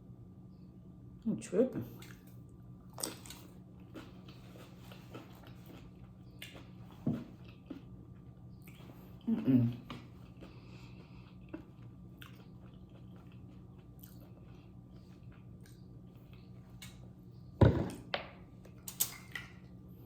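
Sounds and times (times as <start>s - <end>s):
person chewing with wet clicks: 1.9s - 17.5s, 18.6s - 19.8s.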